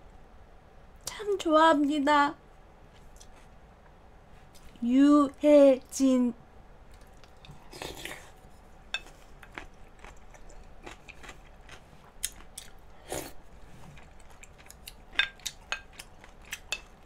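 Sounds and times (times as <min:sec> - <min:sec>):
person chewing soup: 0:06.9 - 0:17.0.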